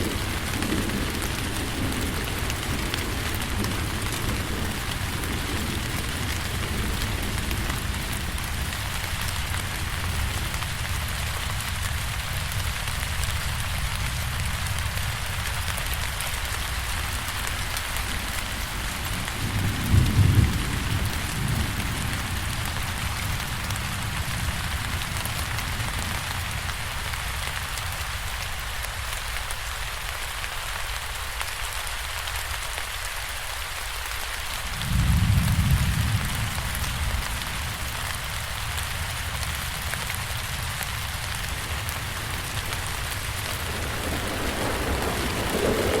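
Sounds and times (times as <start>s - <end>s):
rain hissing and pattering: 0.0s - 46.0s
low rumbles: 41.4s - 46.0s.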